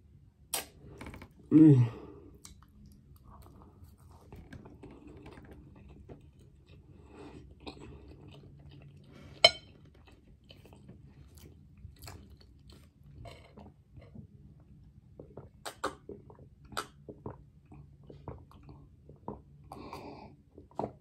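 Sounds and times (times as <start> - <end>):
chewing pancake: 2.4 - 21.0
mouth clicks: 15.6 - 16.1.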